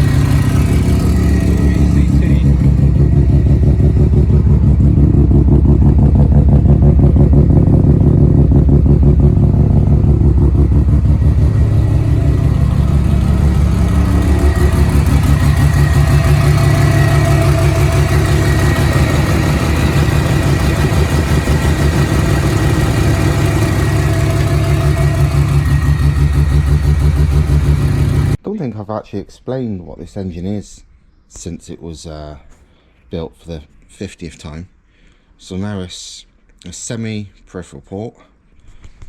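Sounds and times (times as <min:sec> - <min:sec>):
rotary engine idling: 0:00.0 - 0:28.4.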